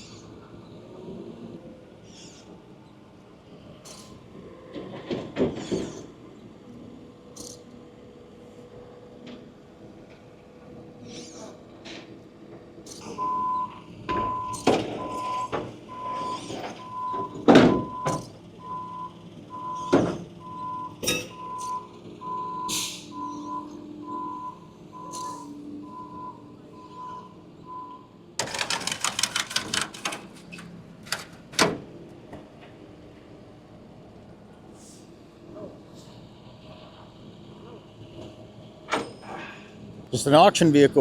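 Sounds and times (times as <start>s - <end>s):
vehicle reversing alarm beeping: 12.9s - 29.0s
sharp clicks: 28.4s - 31.6s
metal knocks and clanks: 28.4s - 31.9s.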